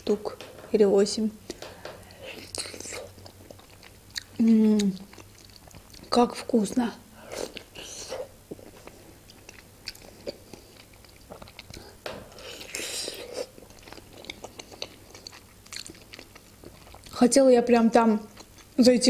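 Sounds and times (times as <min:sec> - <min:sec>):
chewing with wet mouth clicks: 0:02.3 - 0:06.2, 0:08.5 - 0:17.2, 0:18.3 - 0:18.8.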